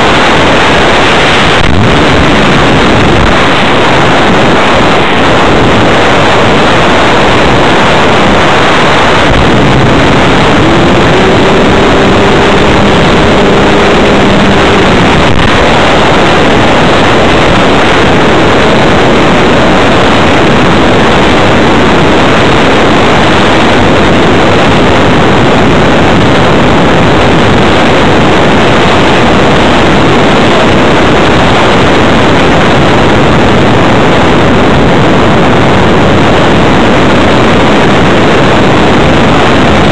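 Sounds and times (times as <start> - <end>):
faint whine rising in pitch: 0.0 - 23.2
rush of airflow: 0.0 - 39.9
electric motor noise: 7.0 - 16.9.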